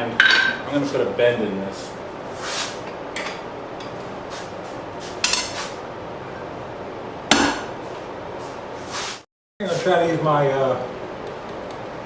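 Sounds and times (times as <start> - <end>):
metal clanking on anvil: 5.2 - 5.6.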